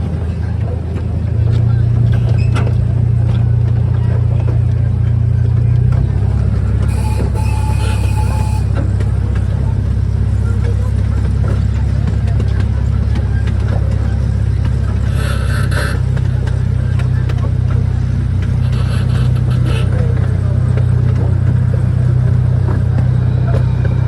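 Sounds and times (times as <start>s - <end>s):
vehicle rumble: 0.0s - 24.0s
bursts of high-pitched noise: 6.9s - 8.8s.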